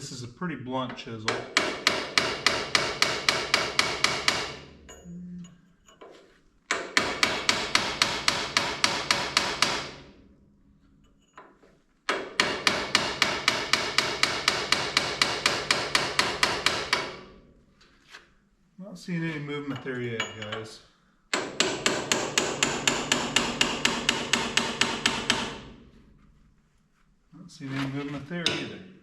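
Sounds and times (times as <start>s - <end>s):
hammer striking steel chisel: 1.2s - 10.1s, 11.0s - 17.3s, 21.3s - 25.8s, 28.4s - 28.9s.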